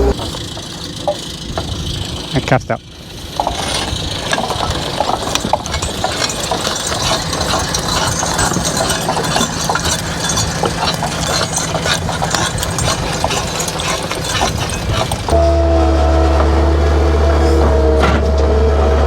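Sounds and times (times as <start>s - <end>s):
engine running steadily: 0.0s - 19.0s
clicks knocks and rattling: 3.4s - 15.3s.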